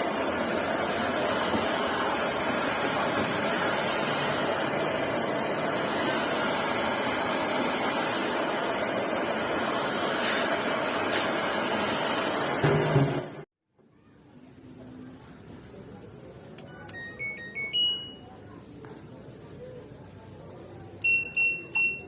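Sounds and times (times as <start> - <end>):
washing machine running: 0.0 - 13.5
brief high hisses: 10.2 - 11.4.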